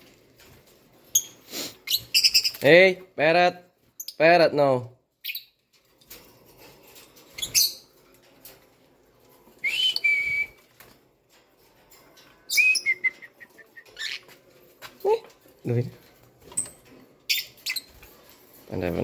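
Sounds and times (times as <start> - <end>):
bird whistled notes and chirps: 9.6 - 10.6, 12.5 - 14.2.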